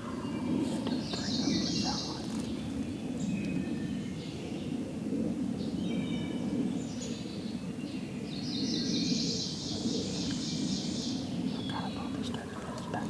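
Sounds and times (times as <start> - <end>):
steady low rumble: 0.0 - 3.8
small songbirds chirping: 0.0 - 4.8, 5.6 - 13.0.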